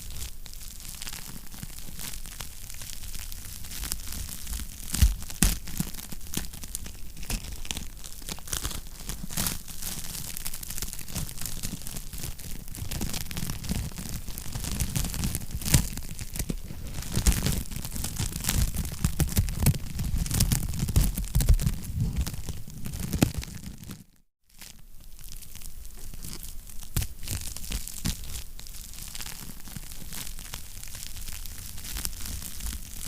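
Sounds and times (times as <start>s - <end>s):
fire snaps and pops: 3.8s - 24.1s
fire low rumble: 15.3s - 23.8s.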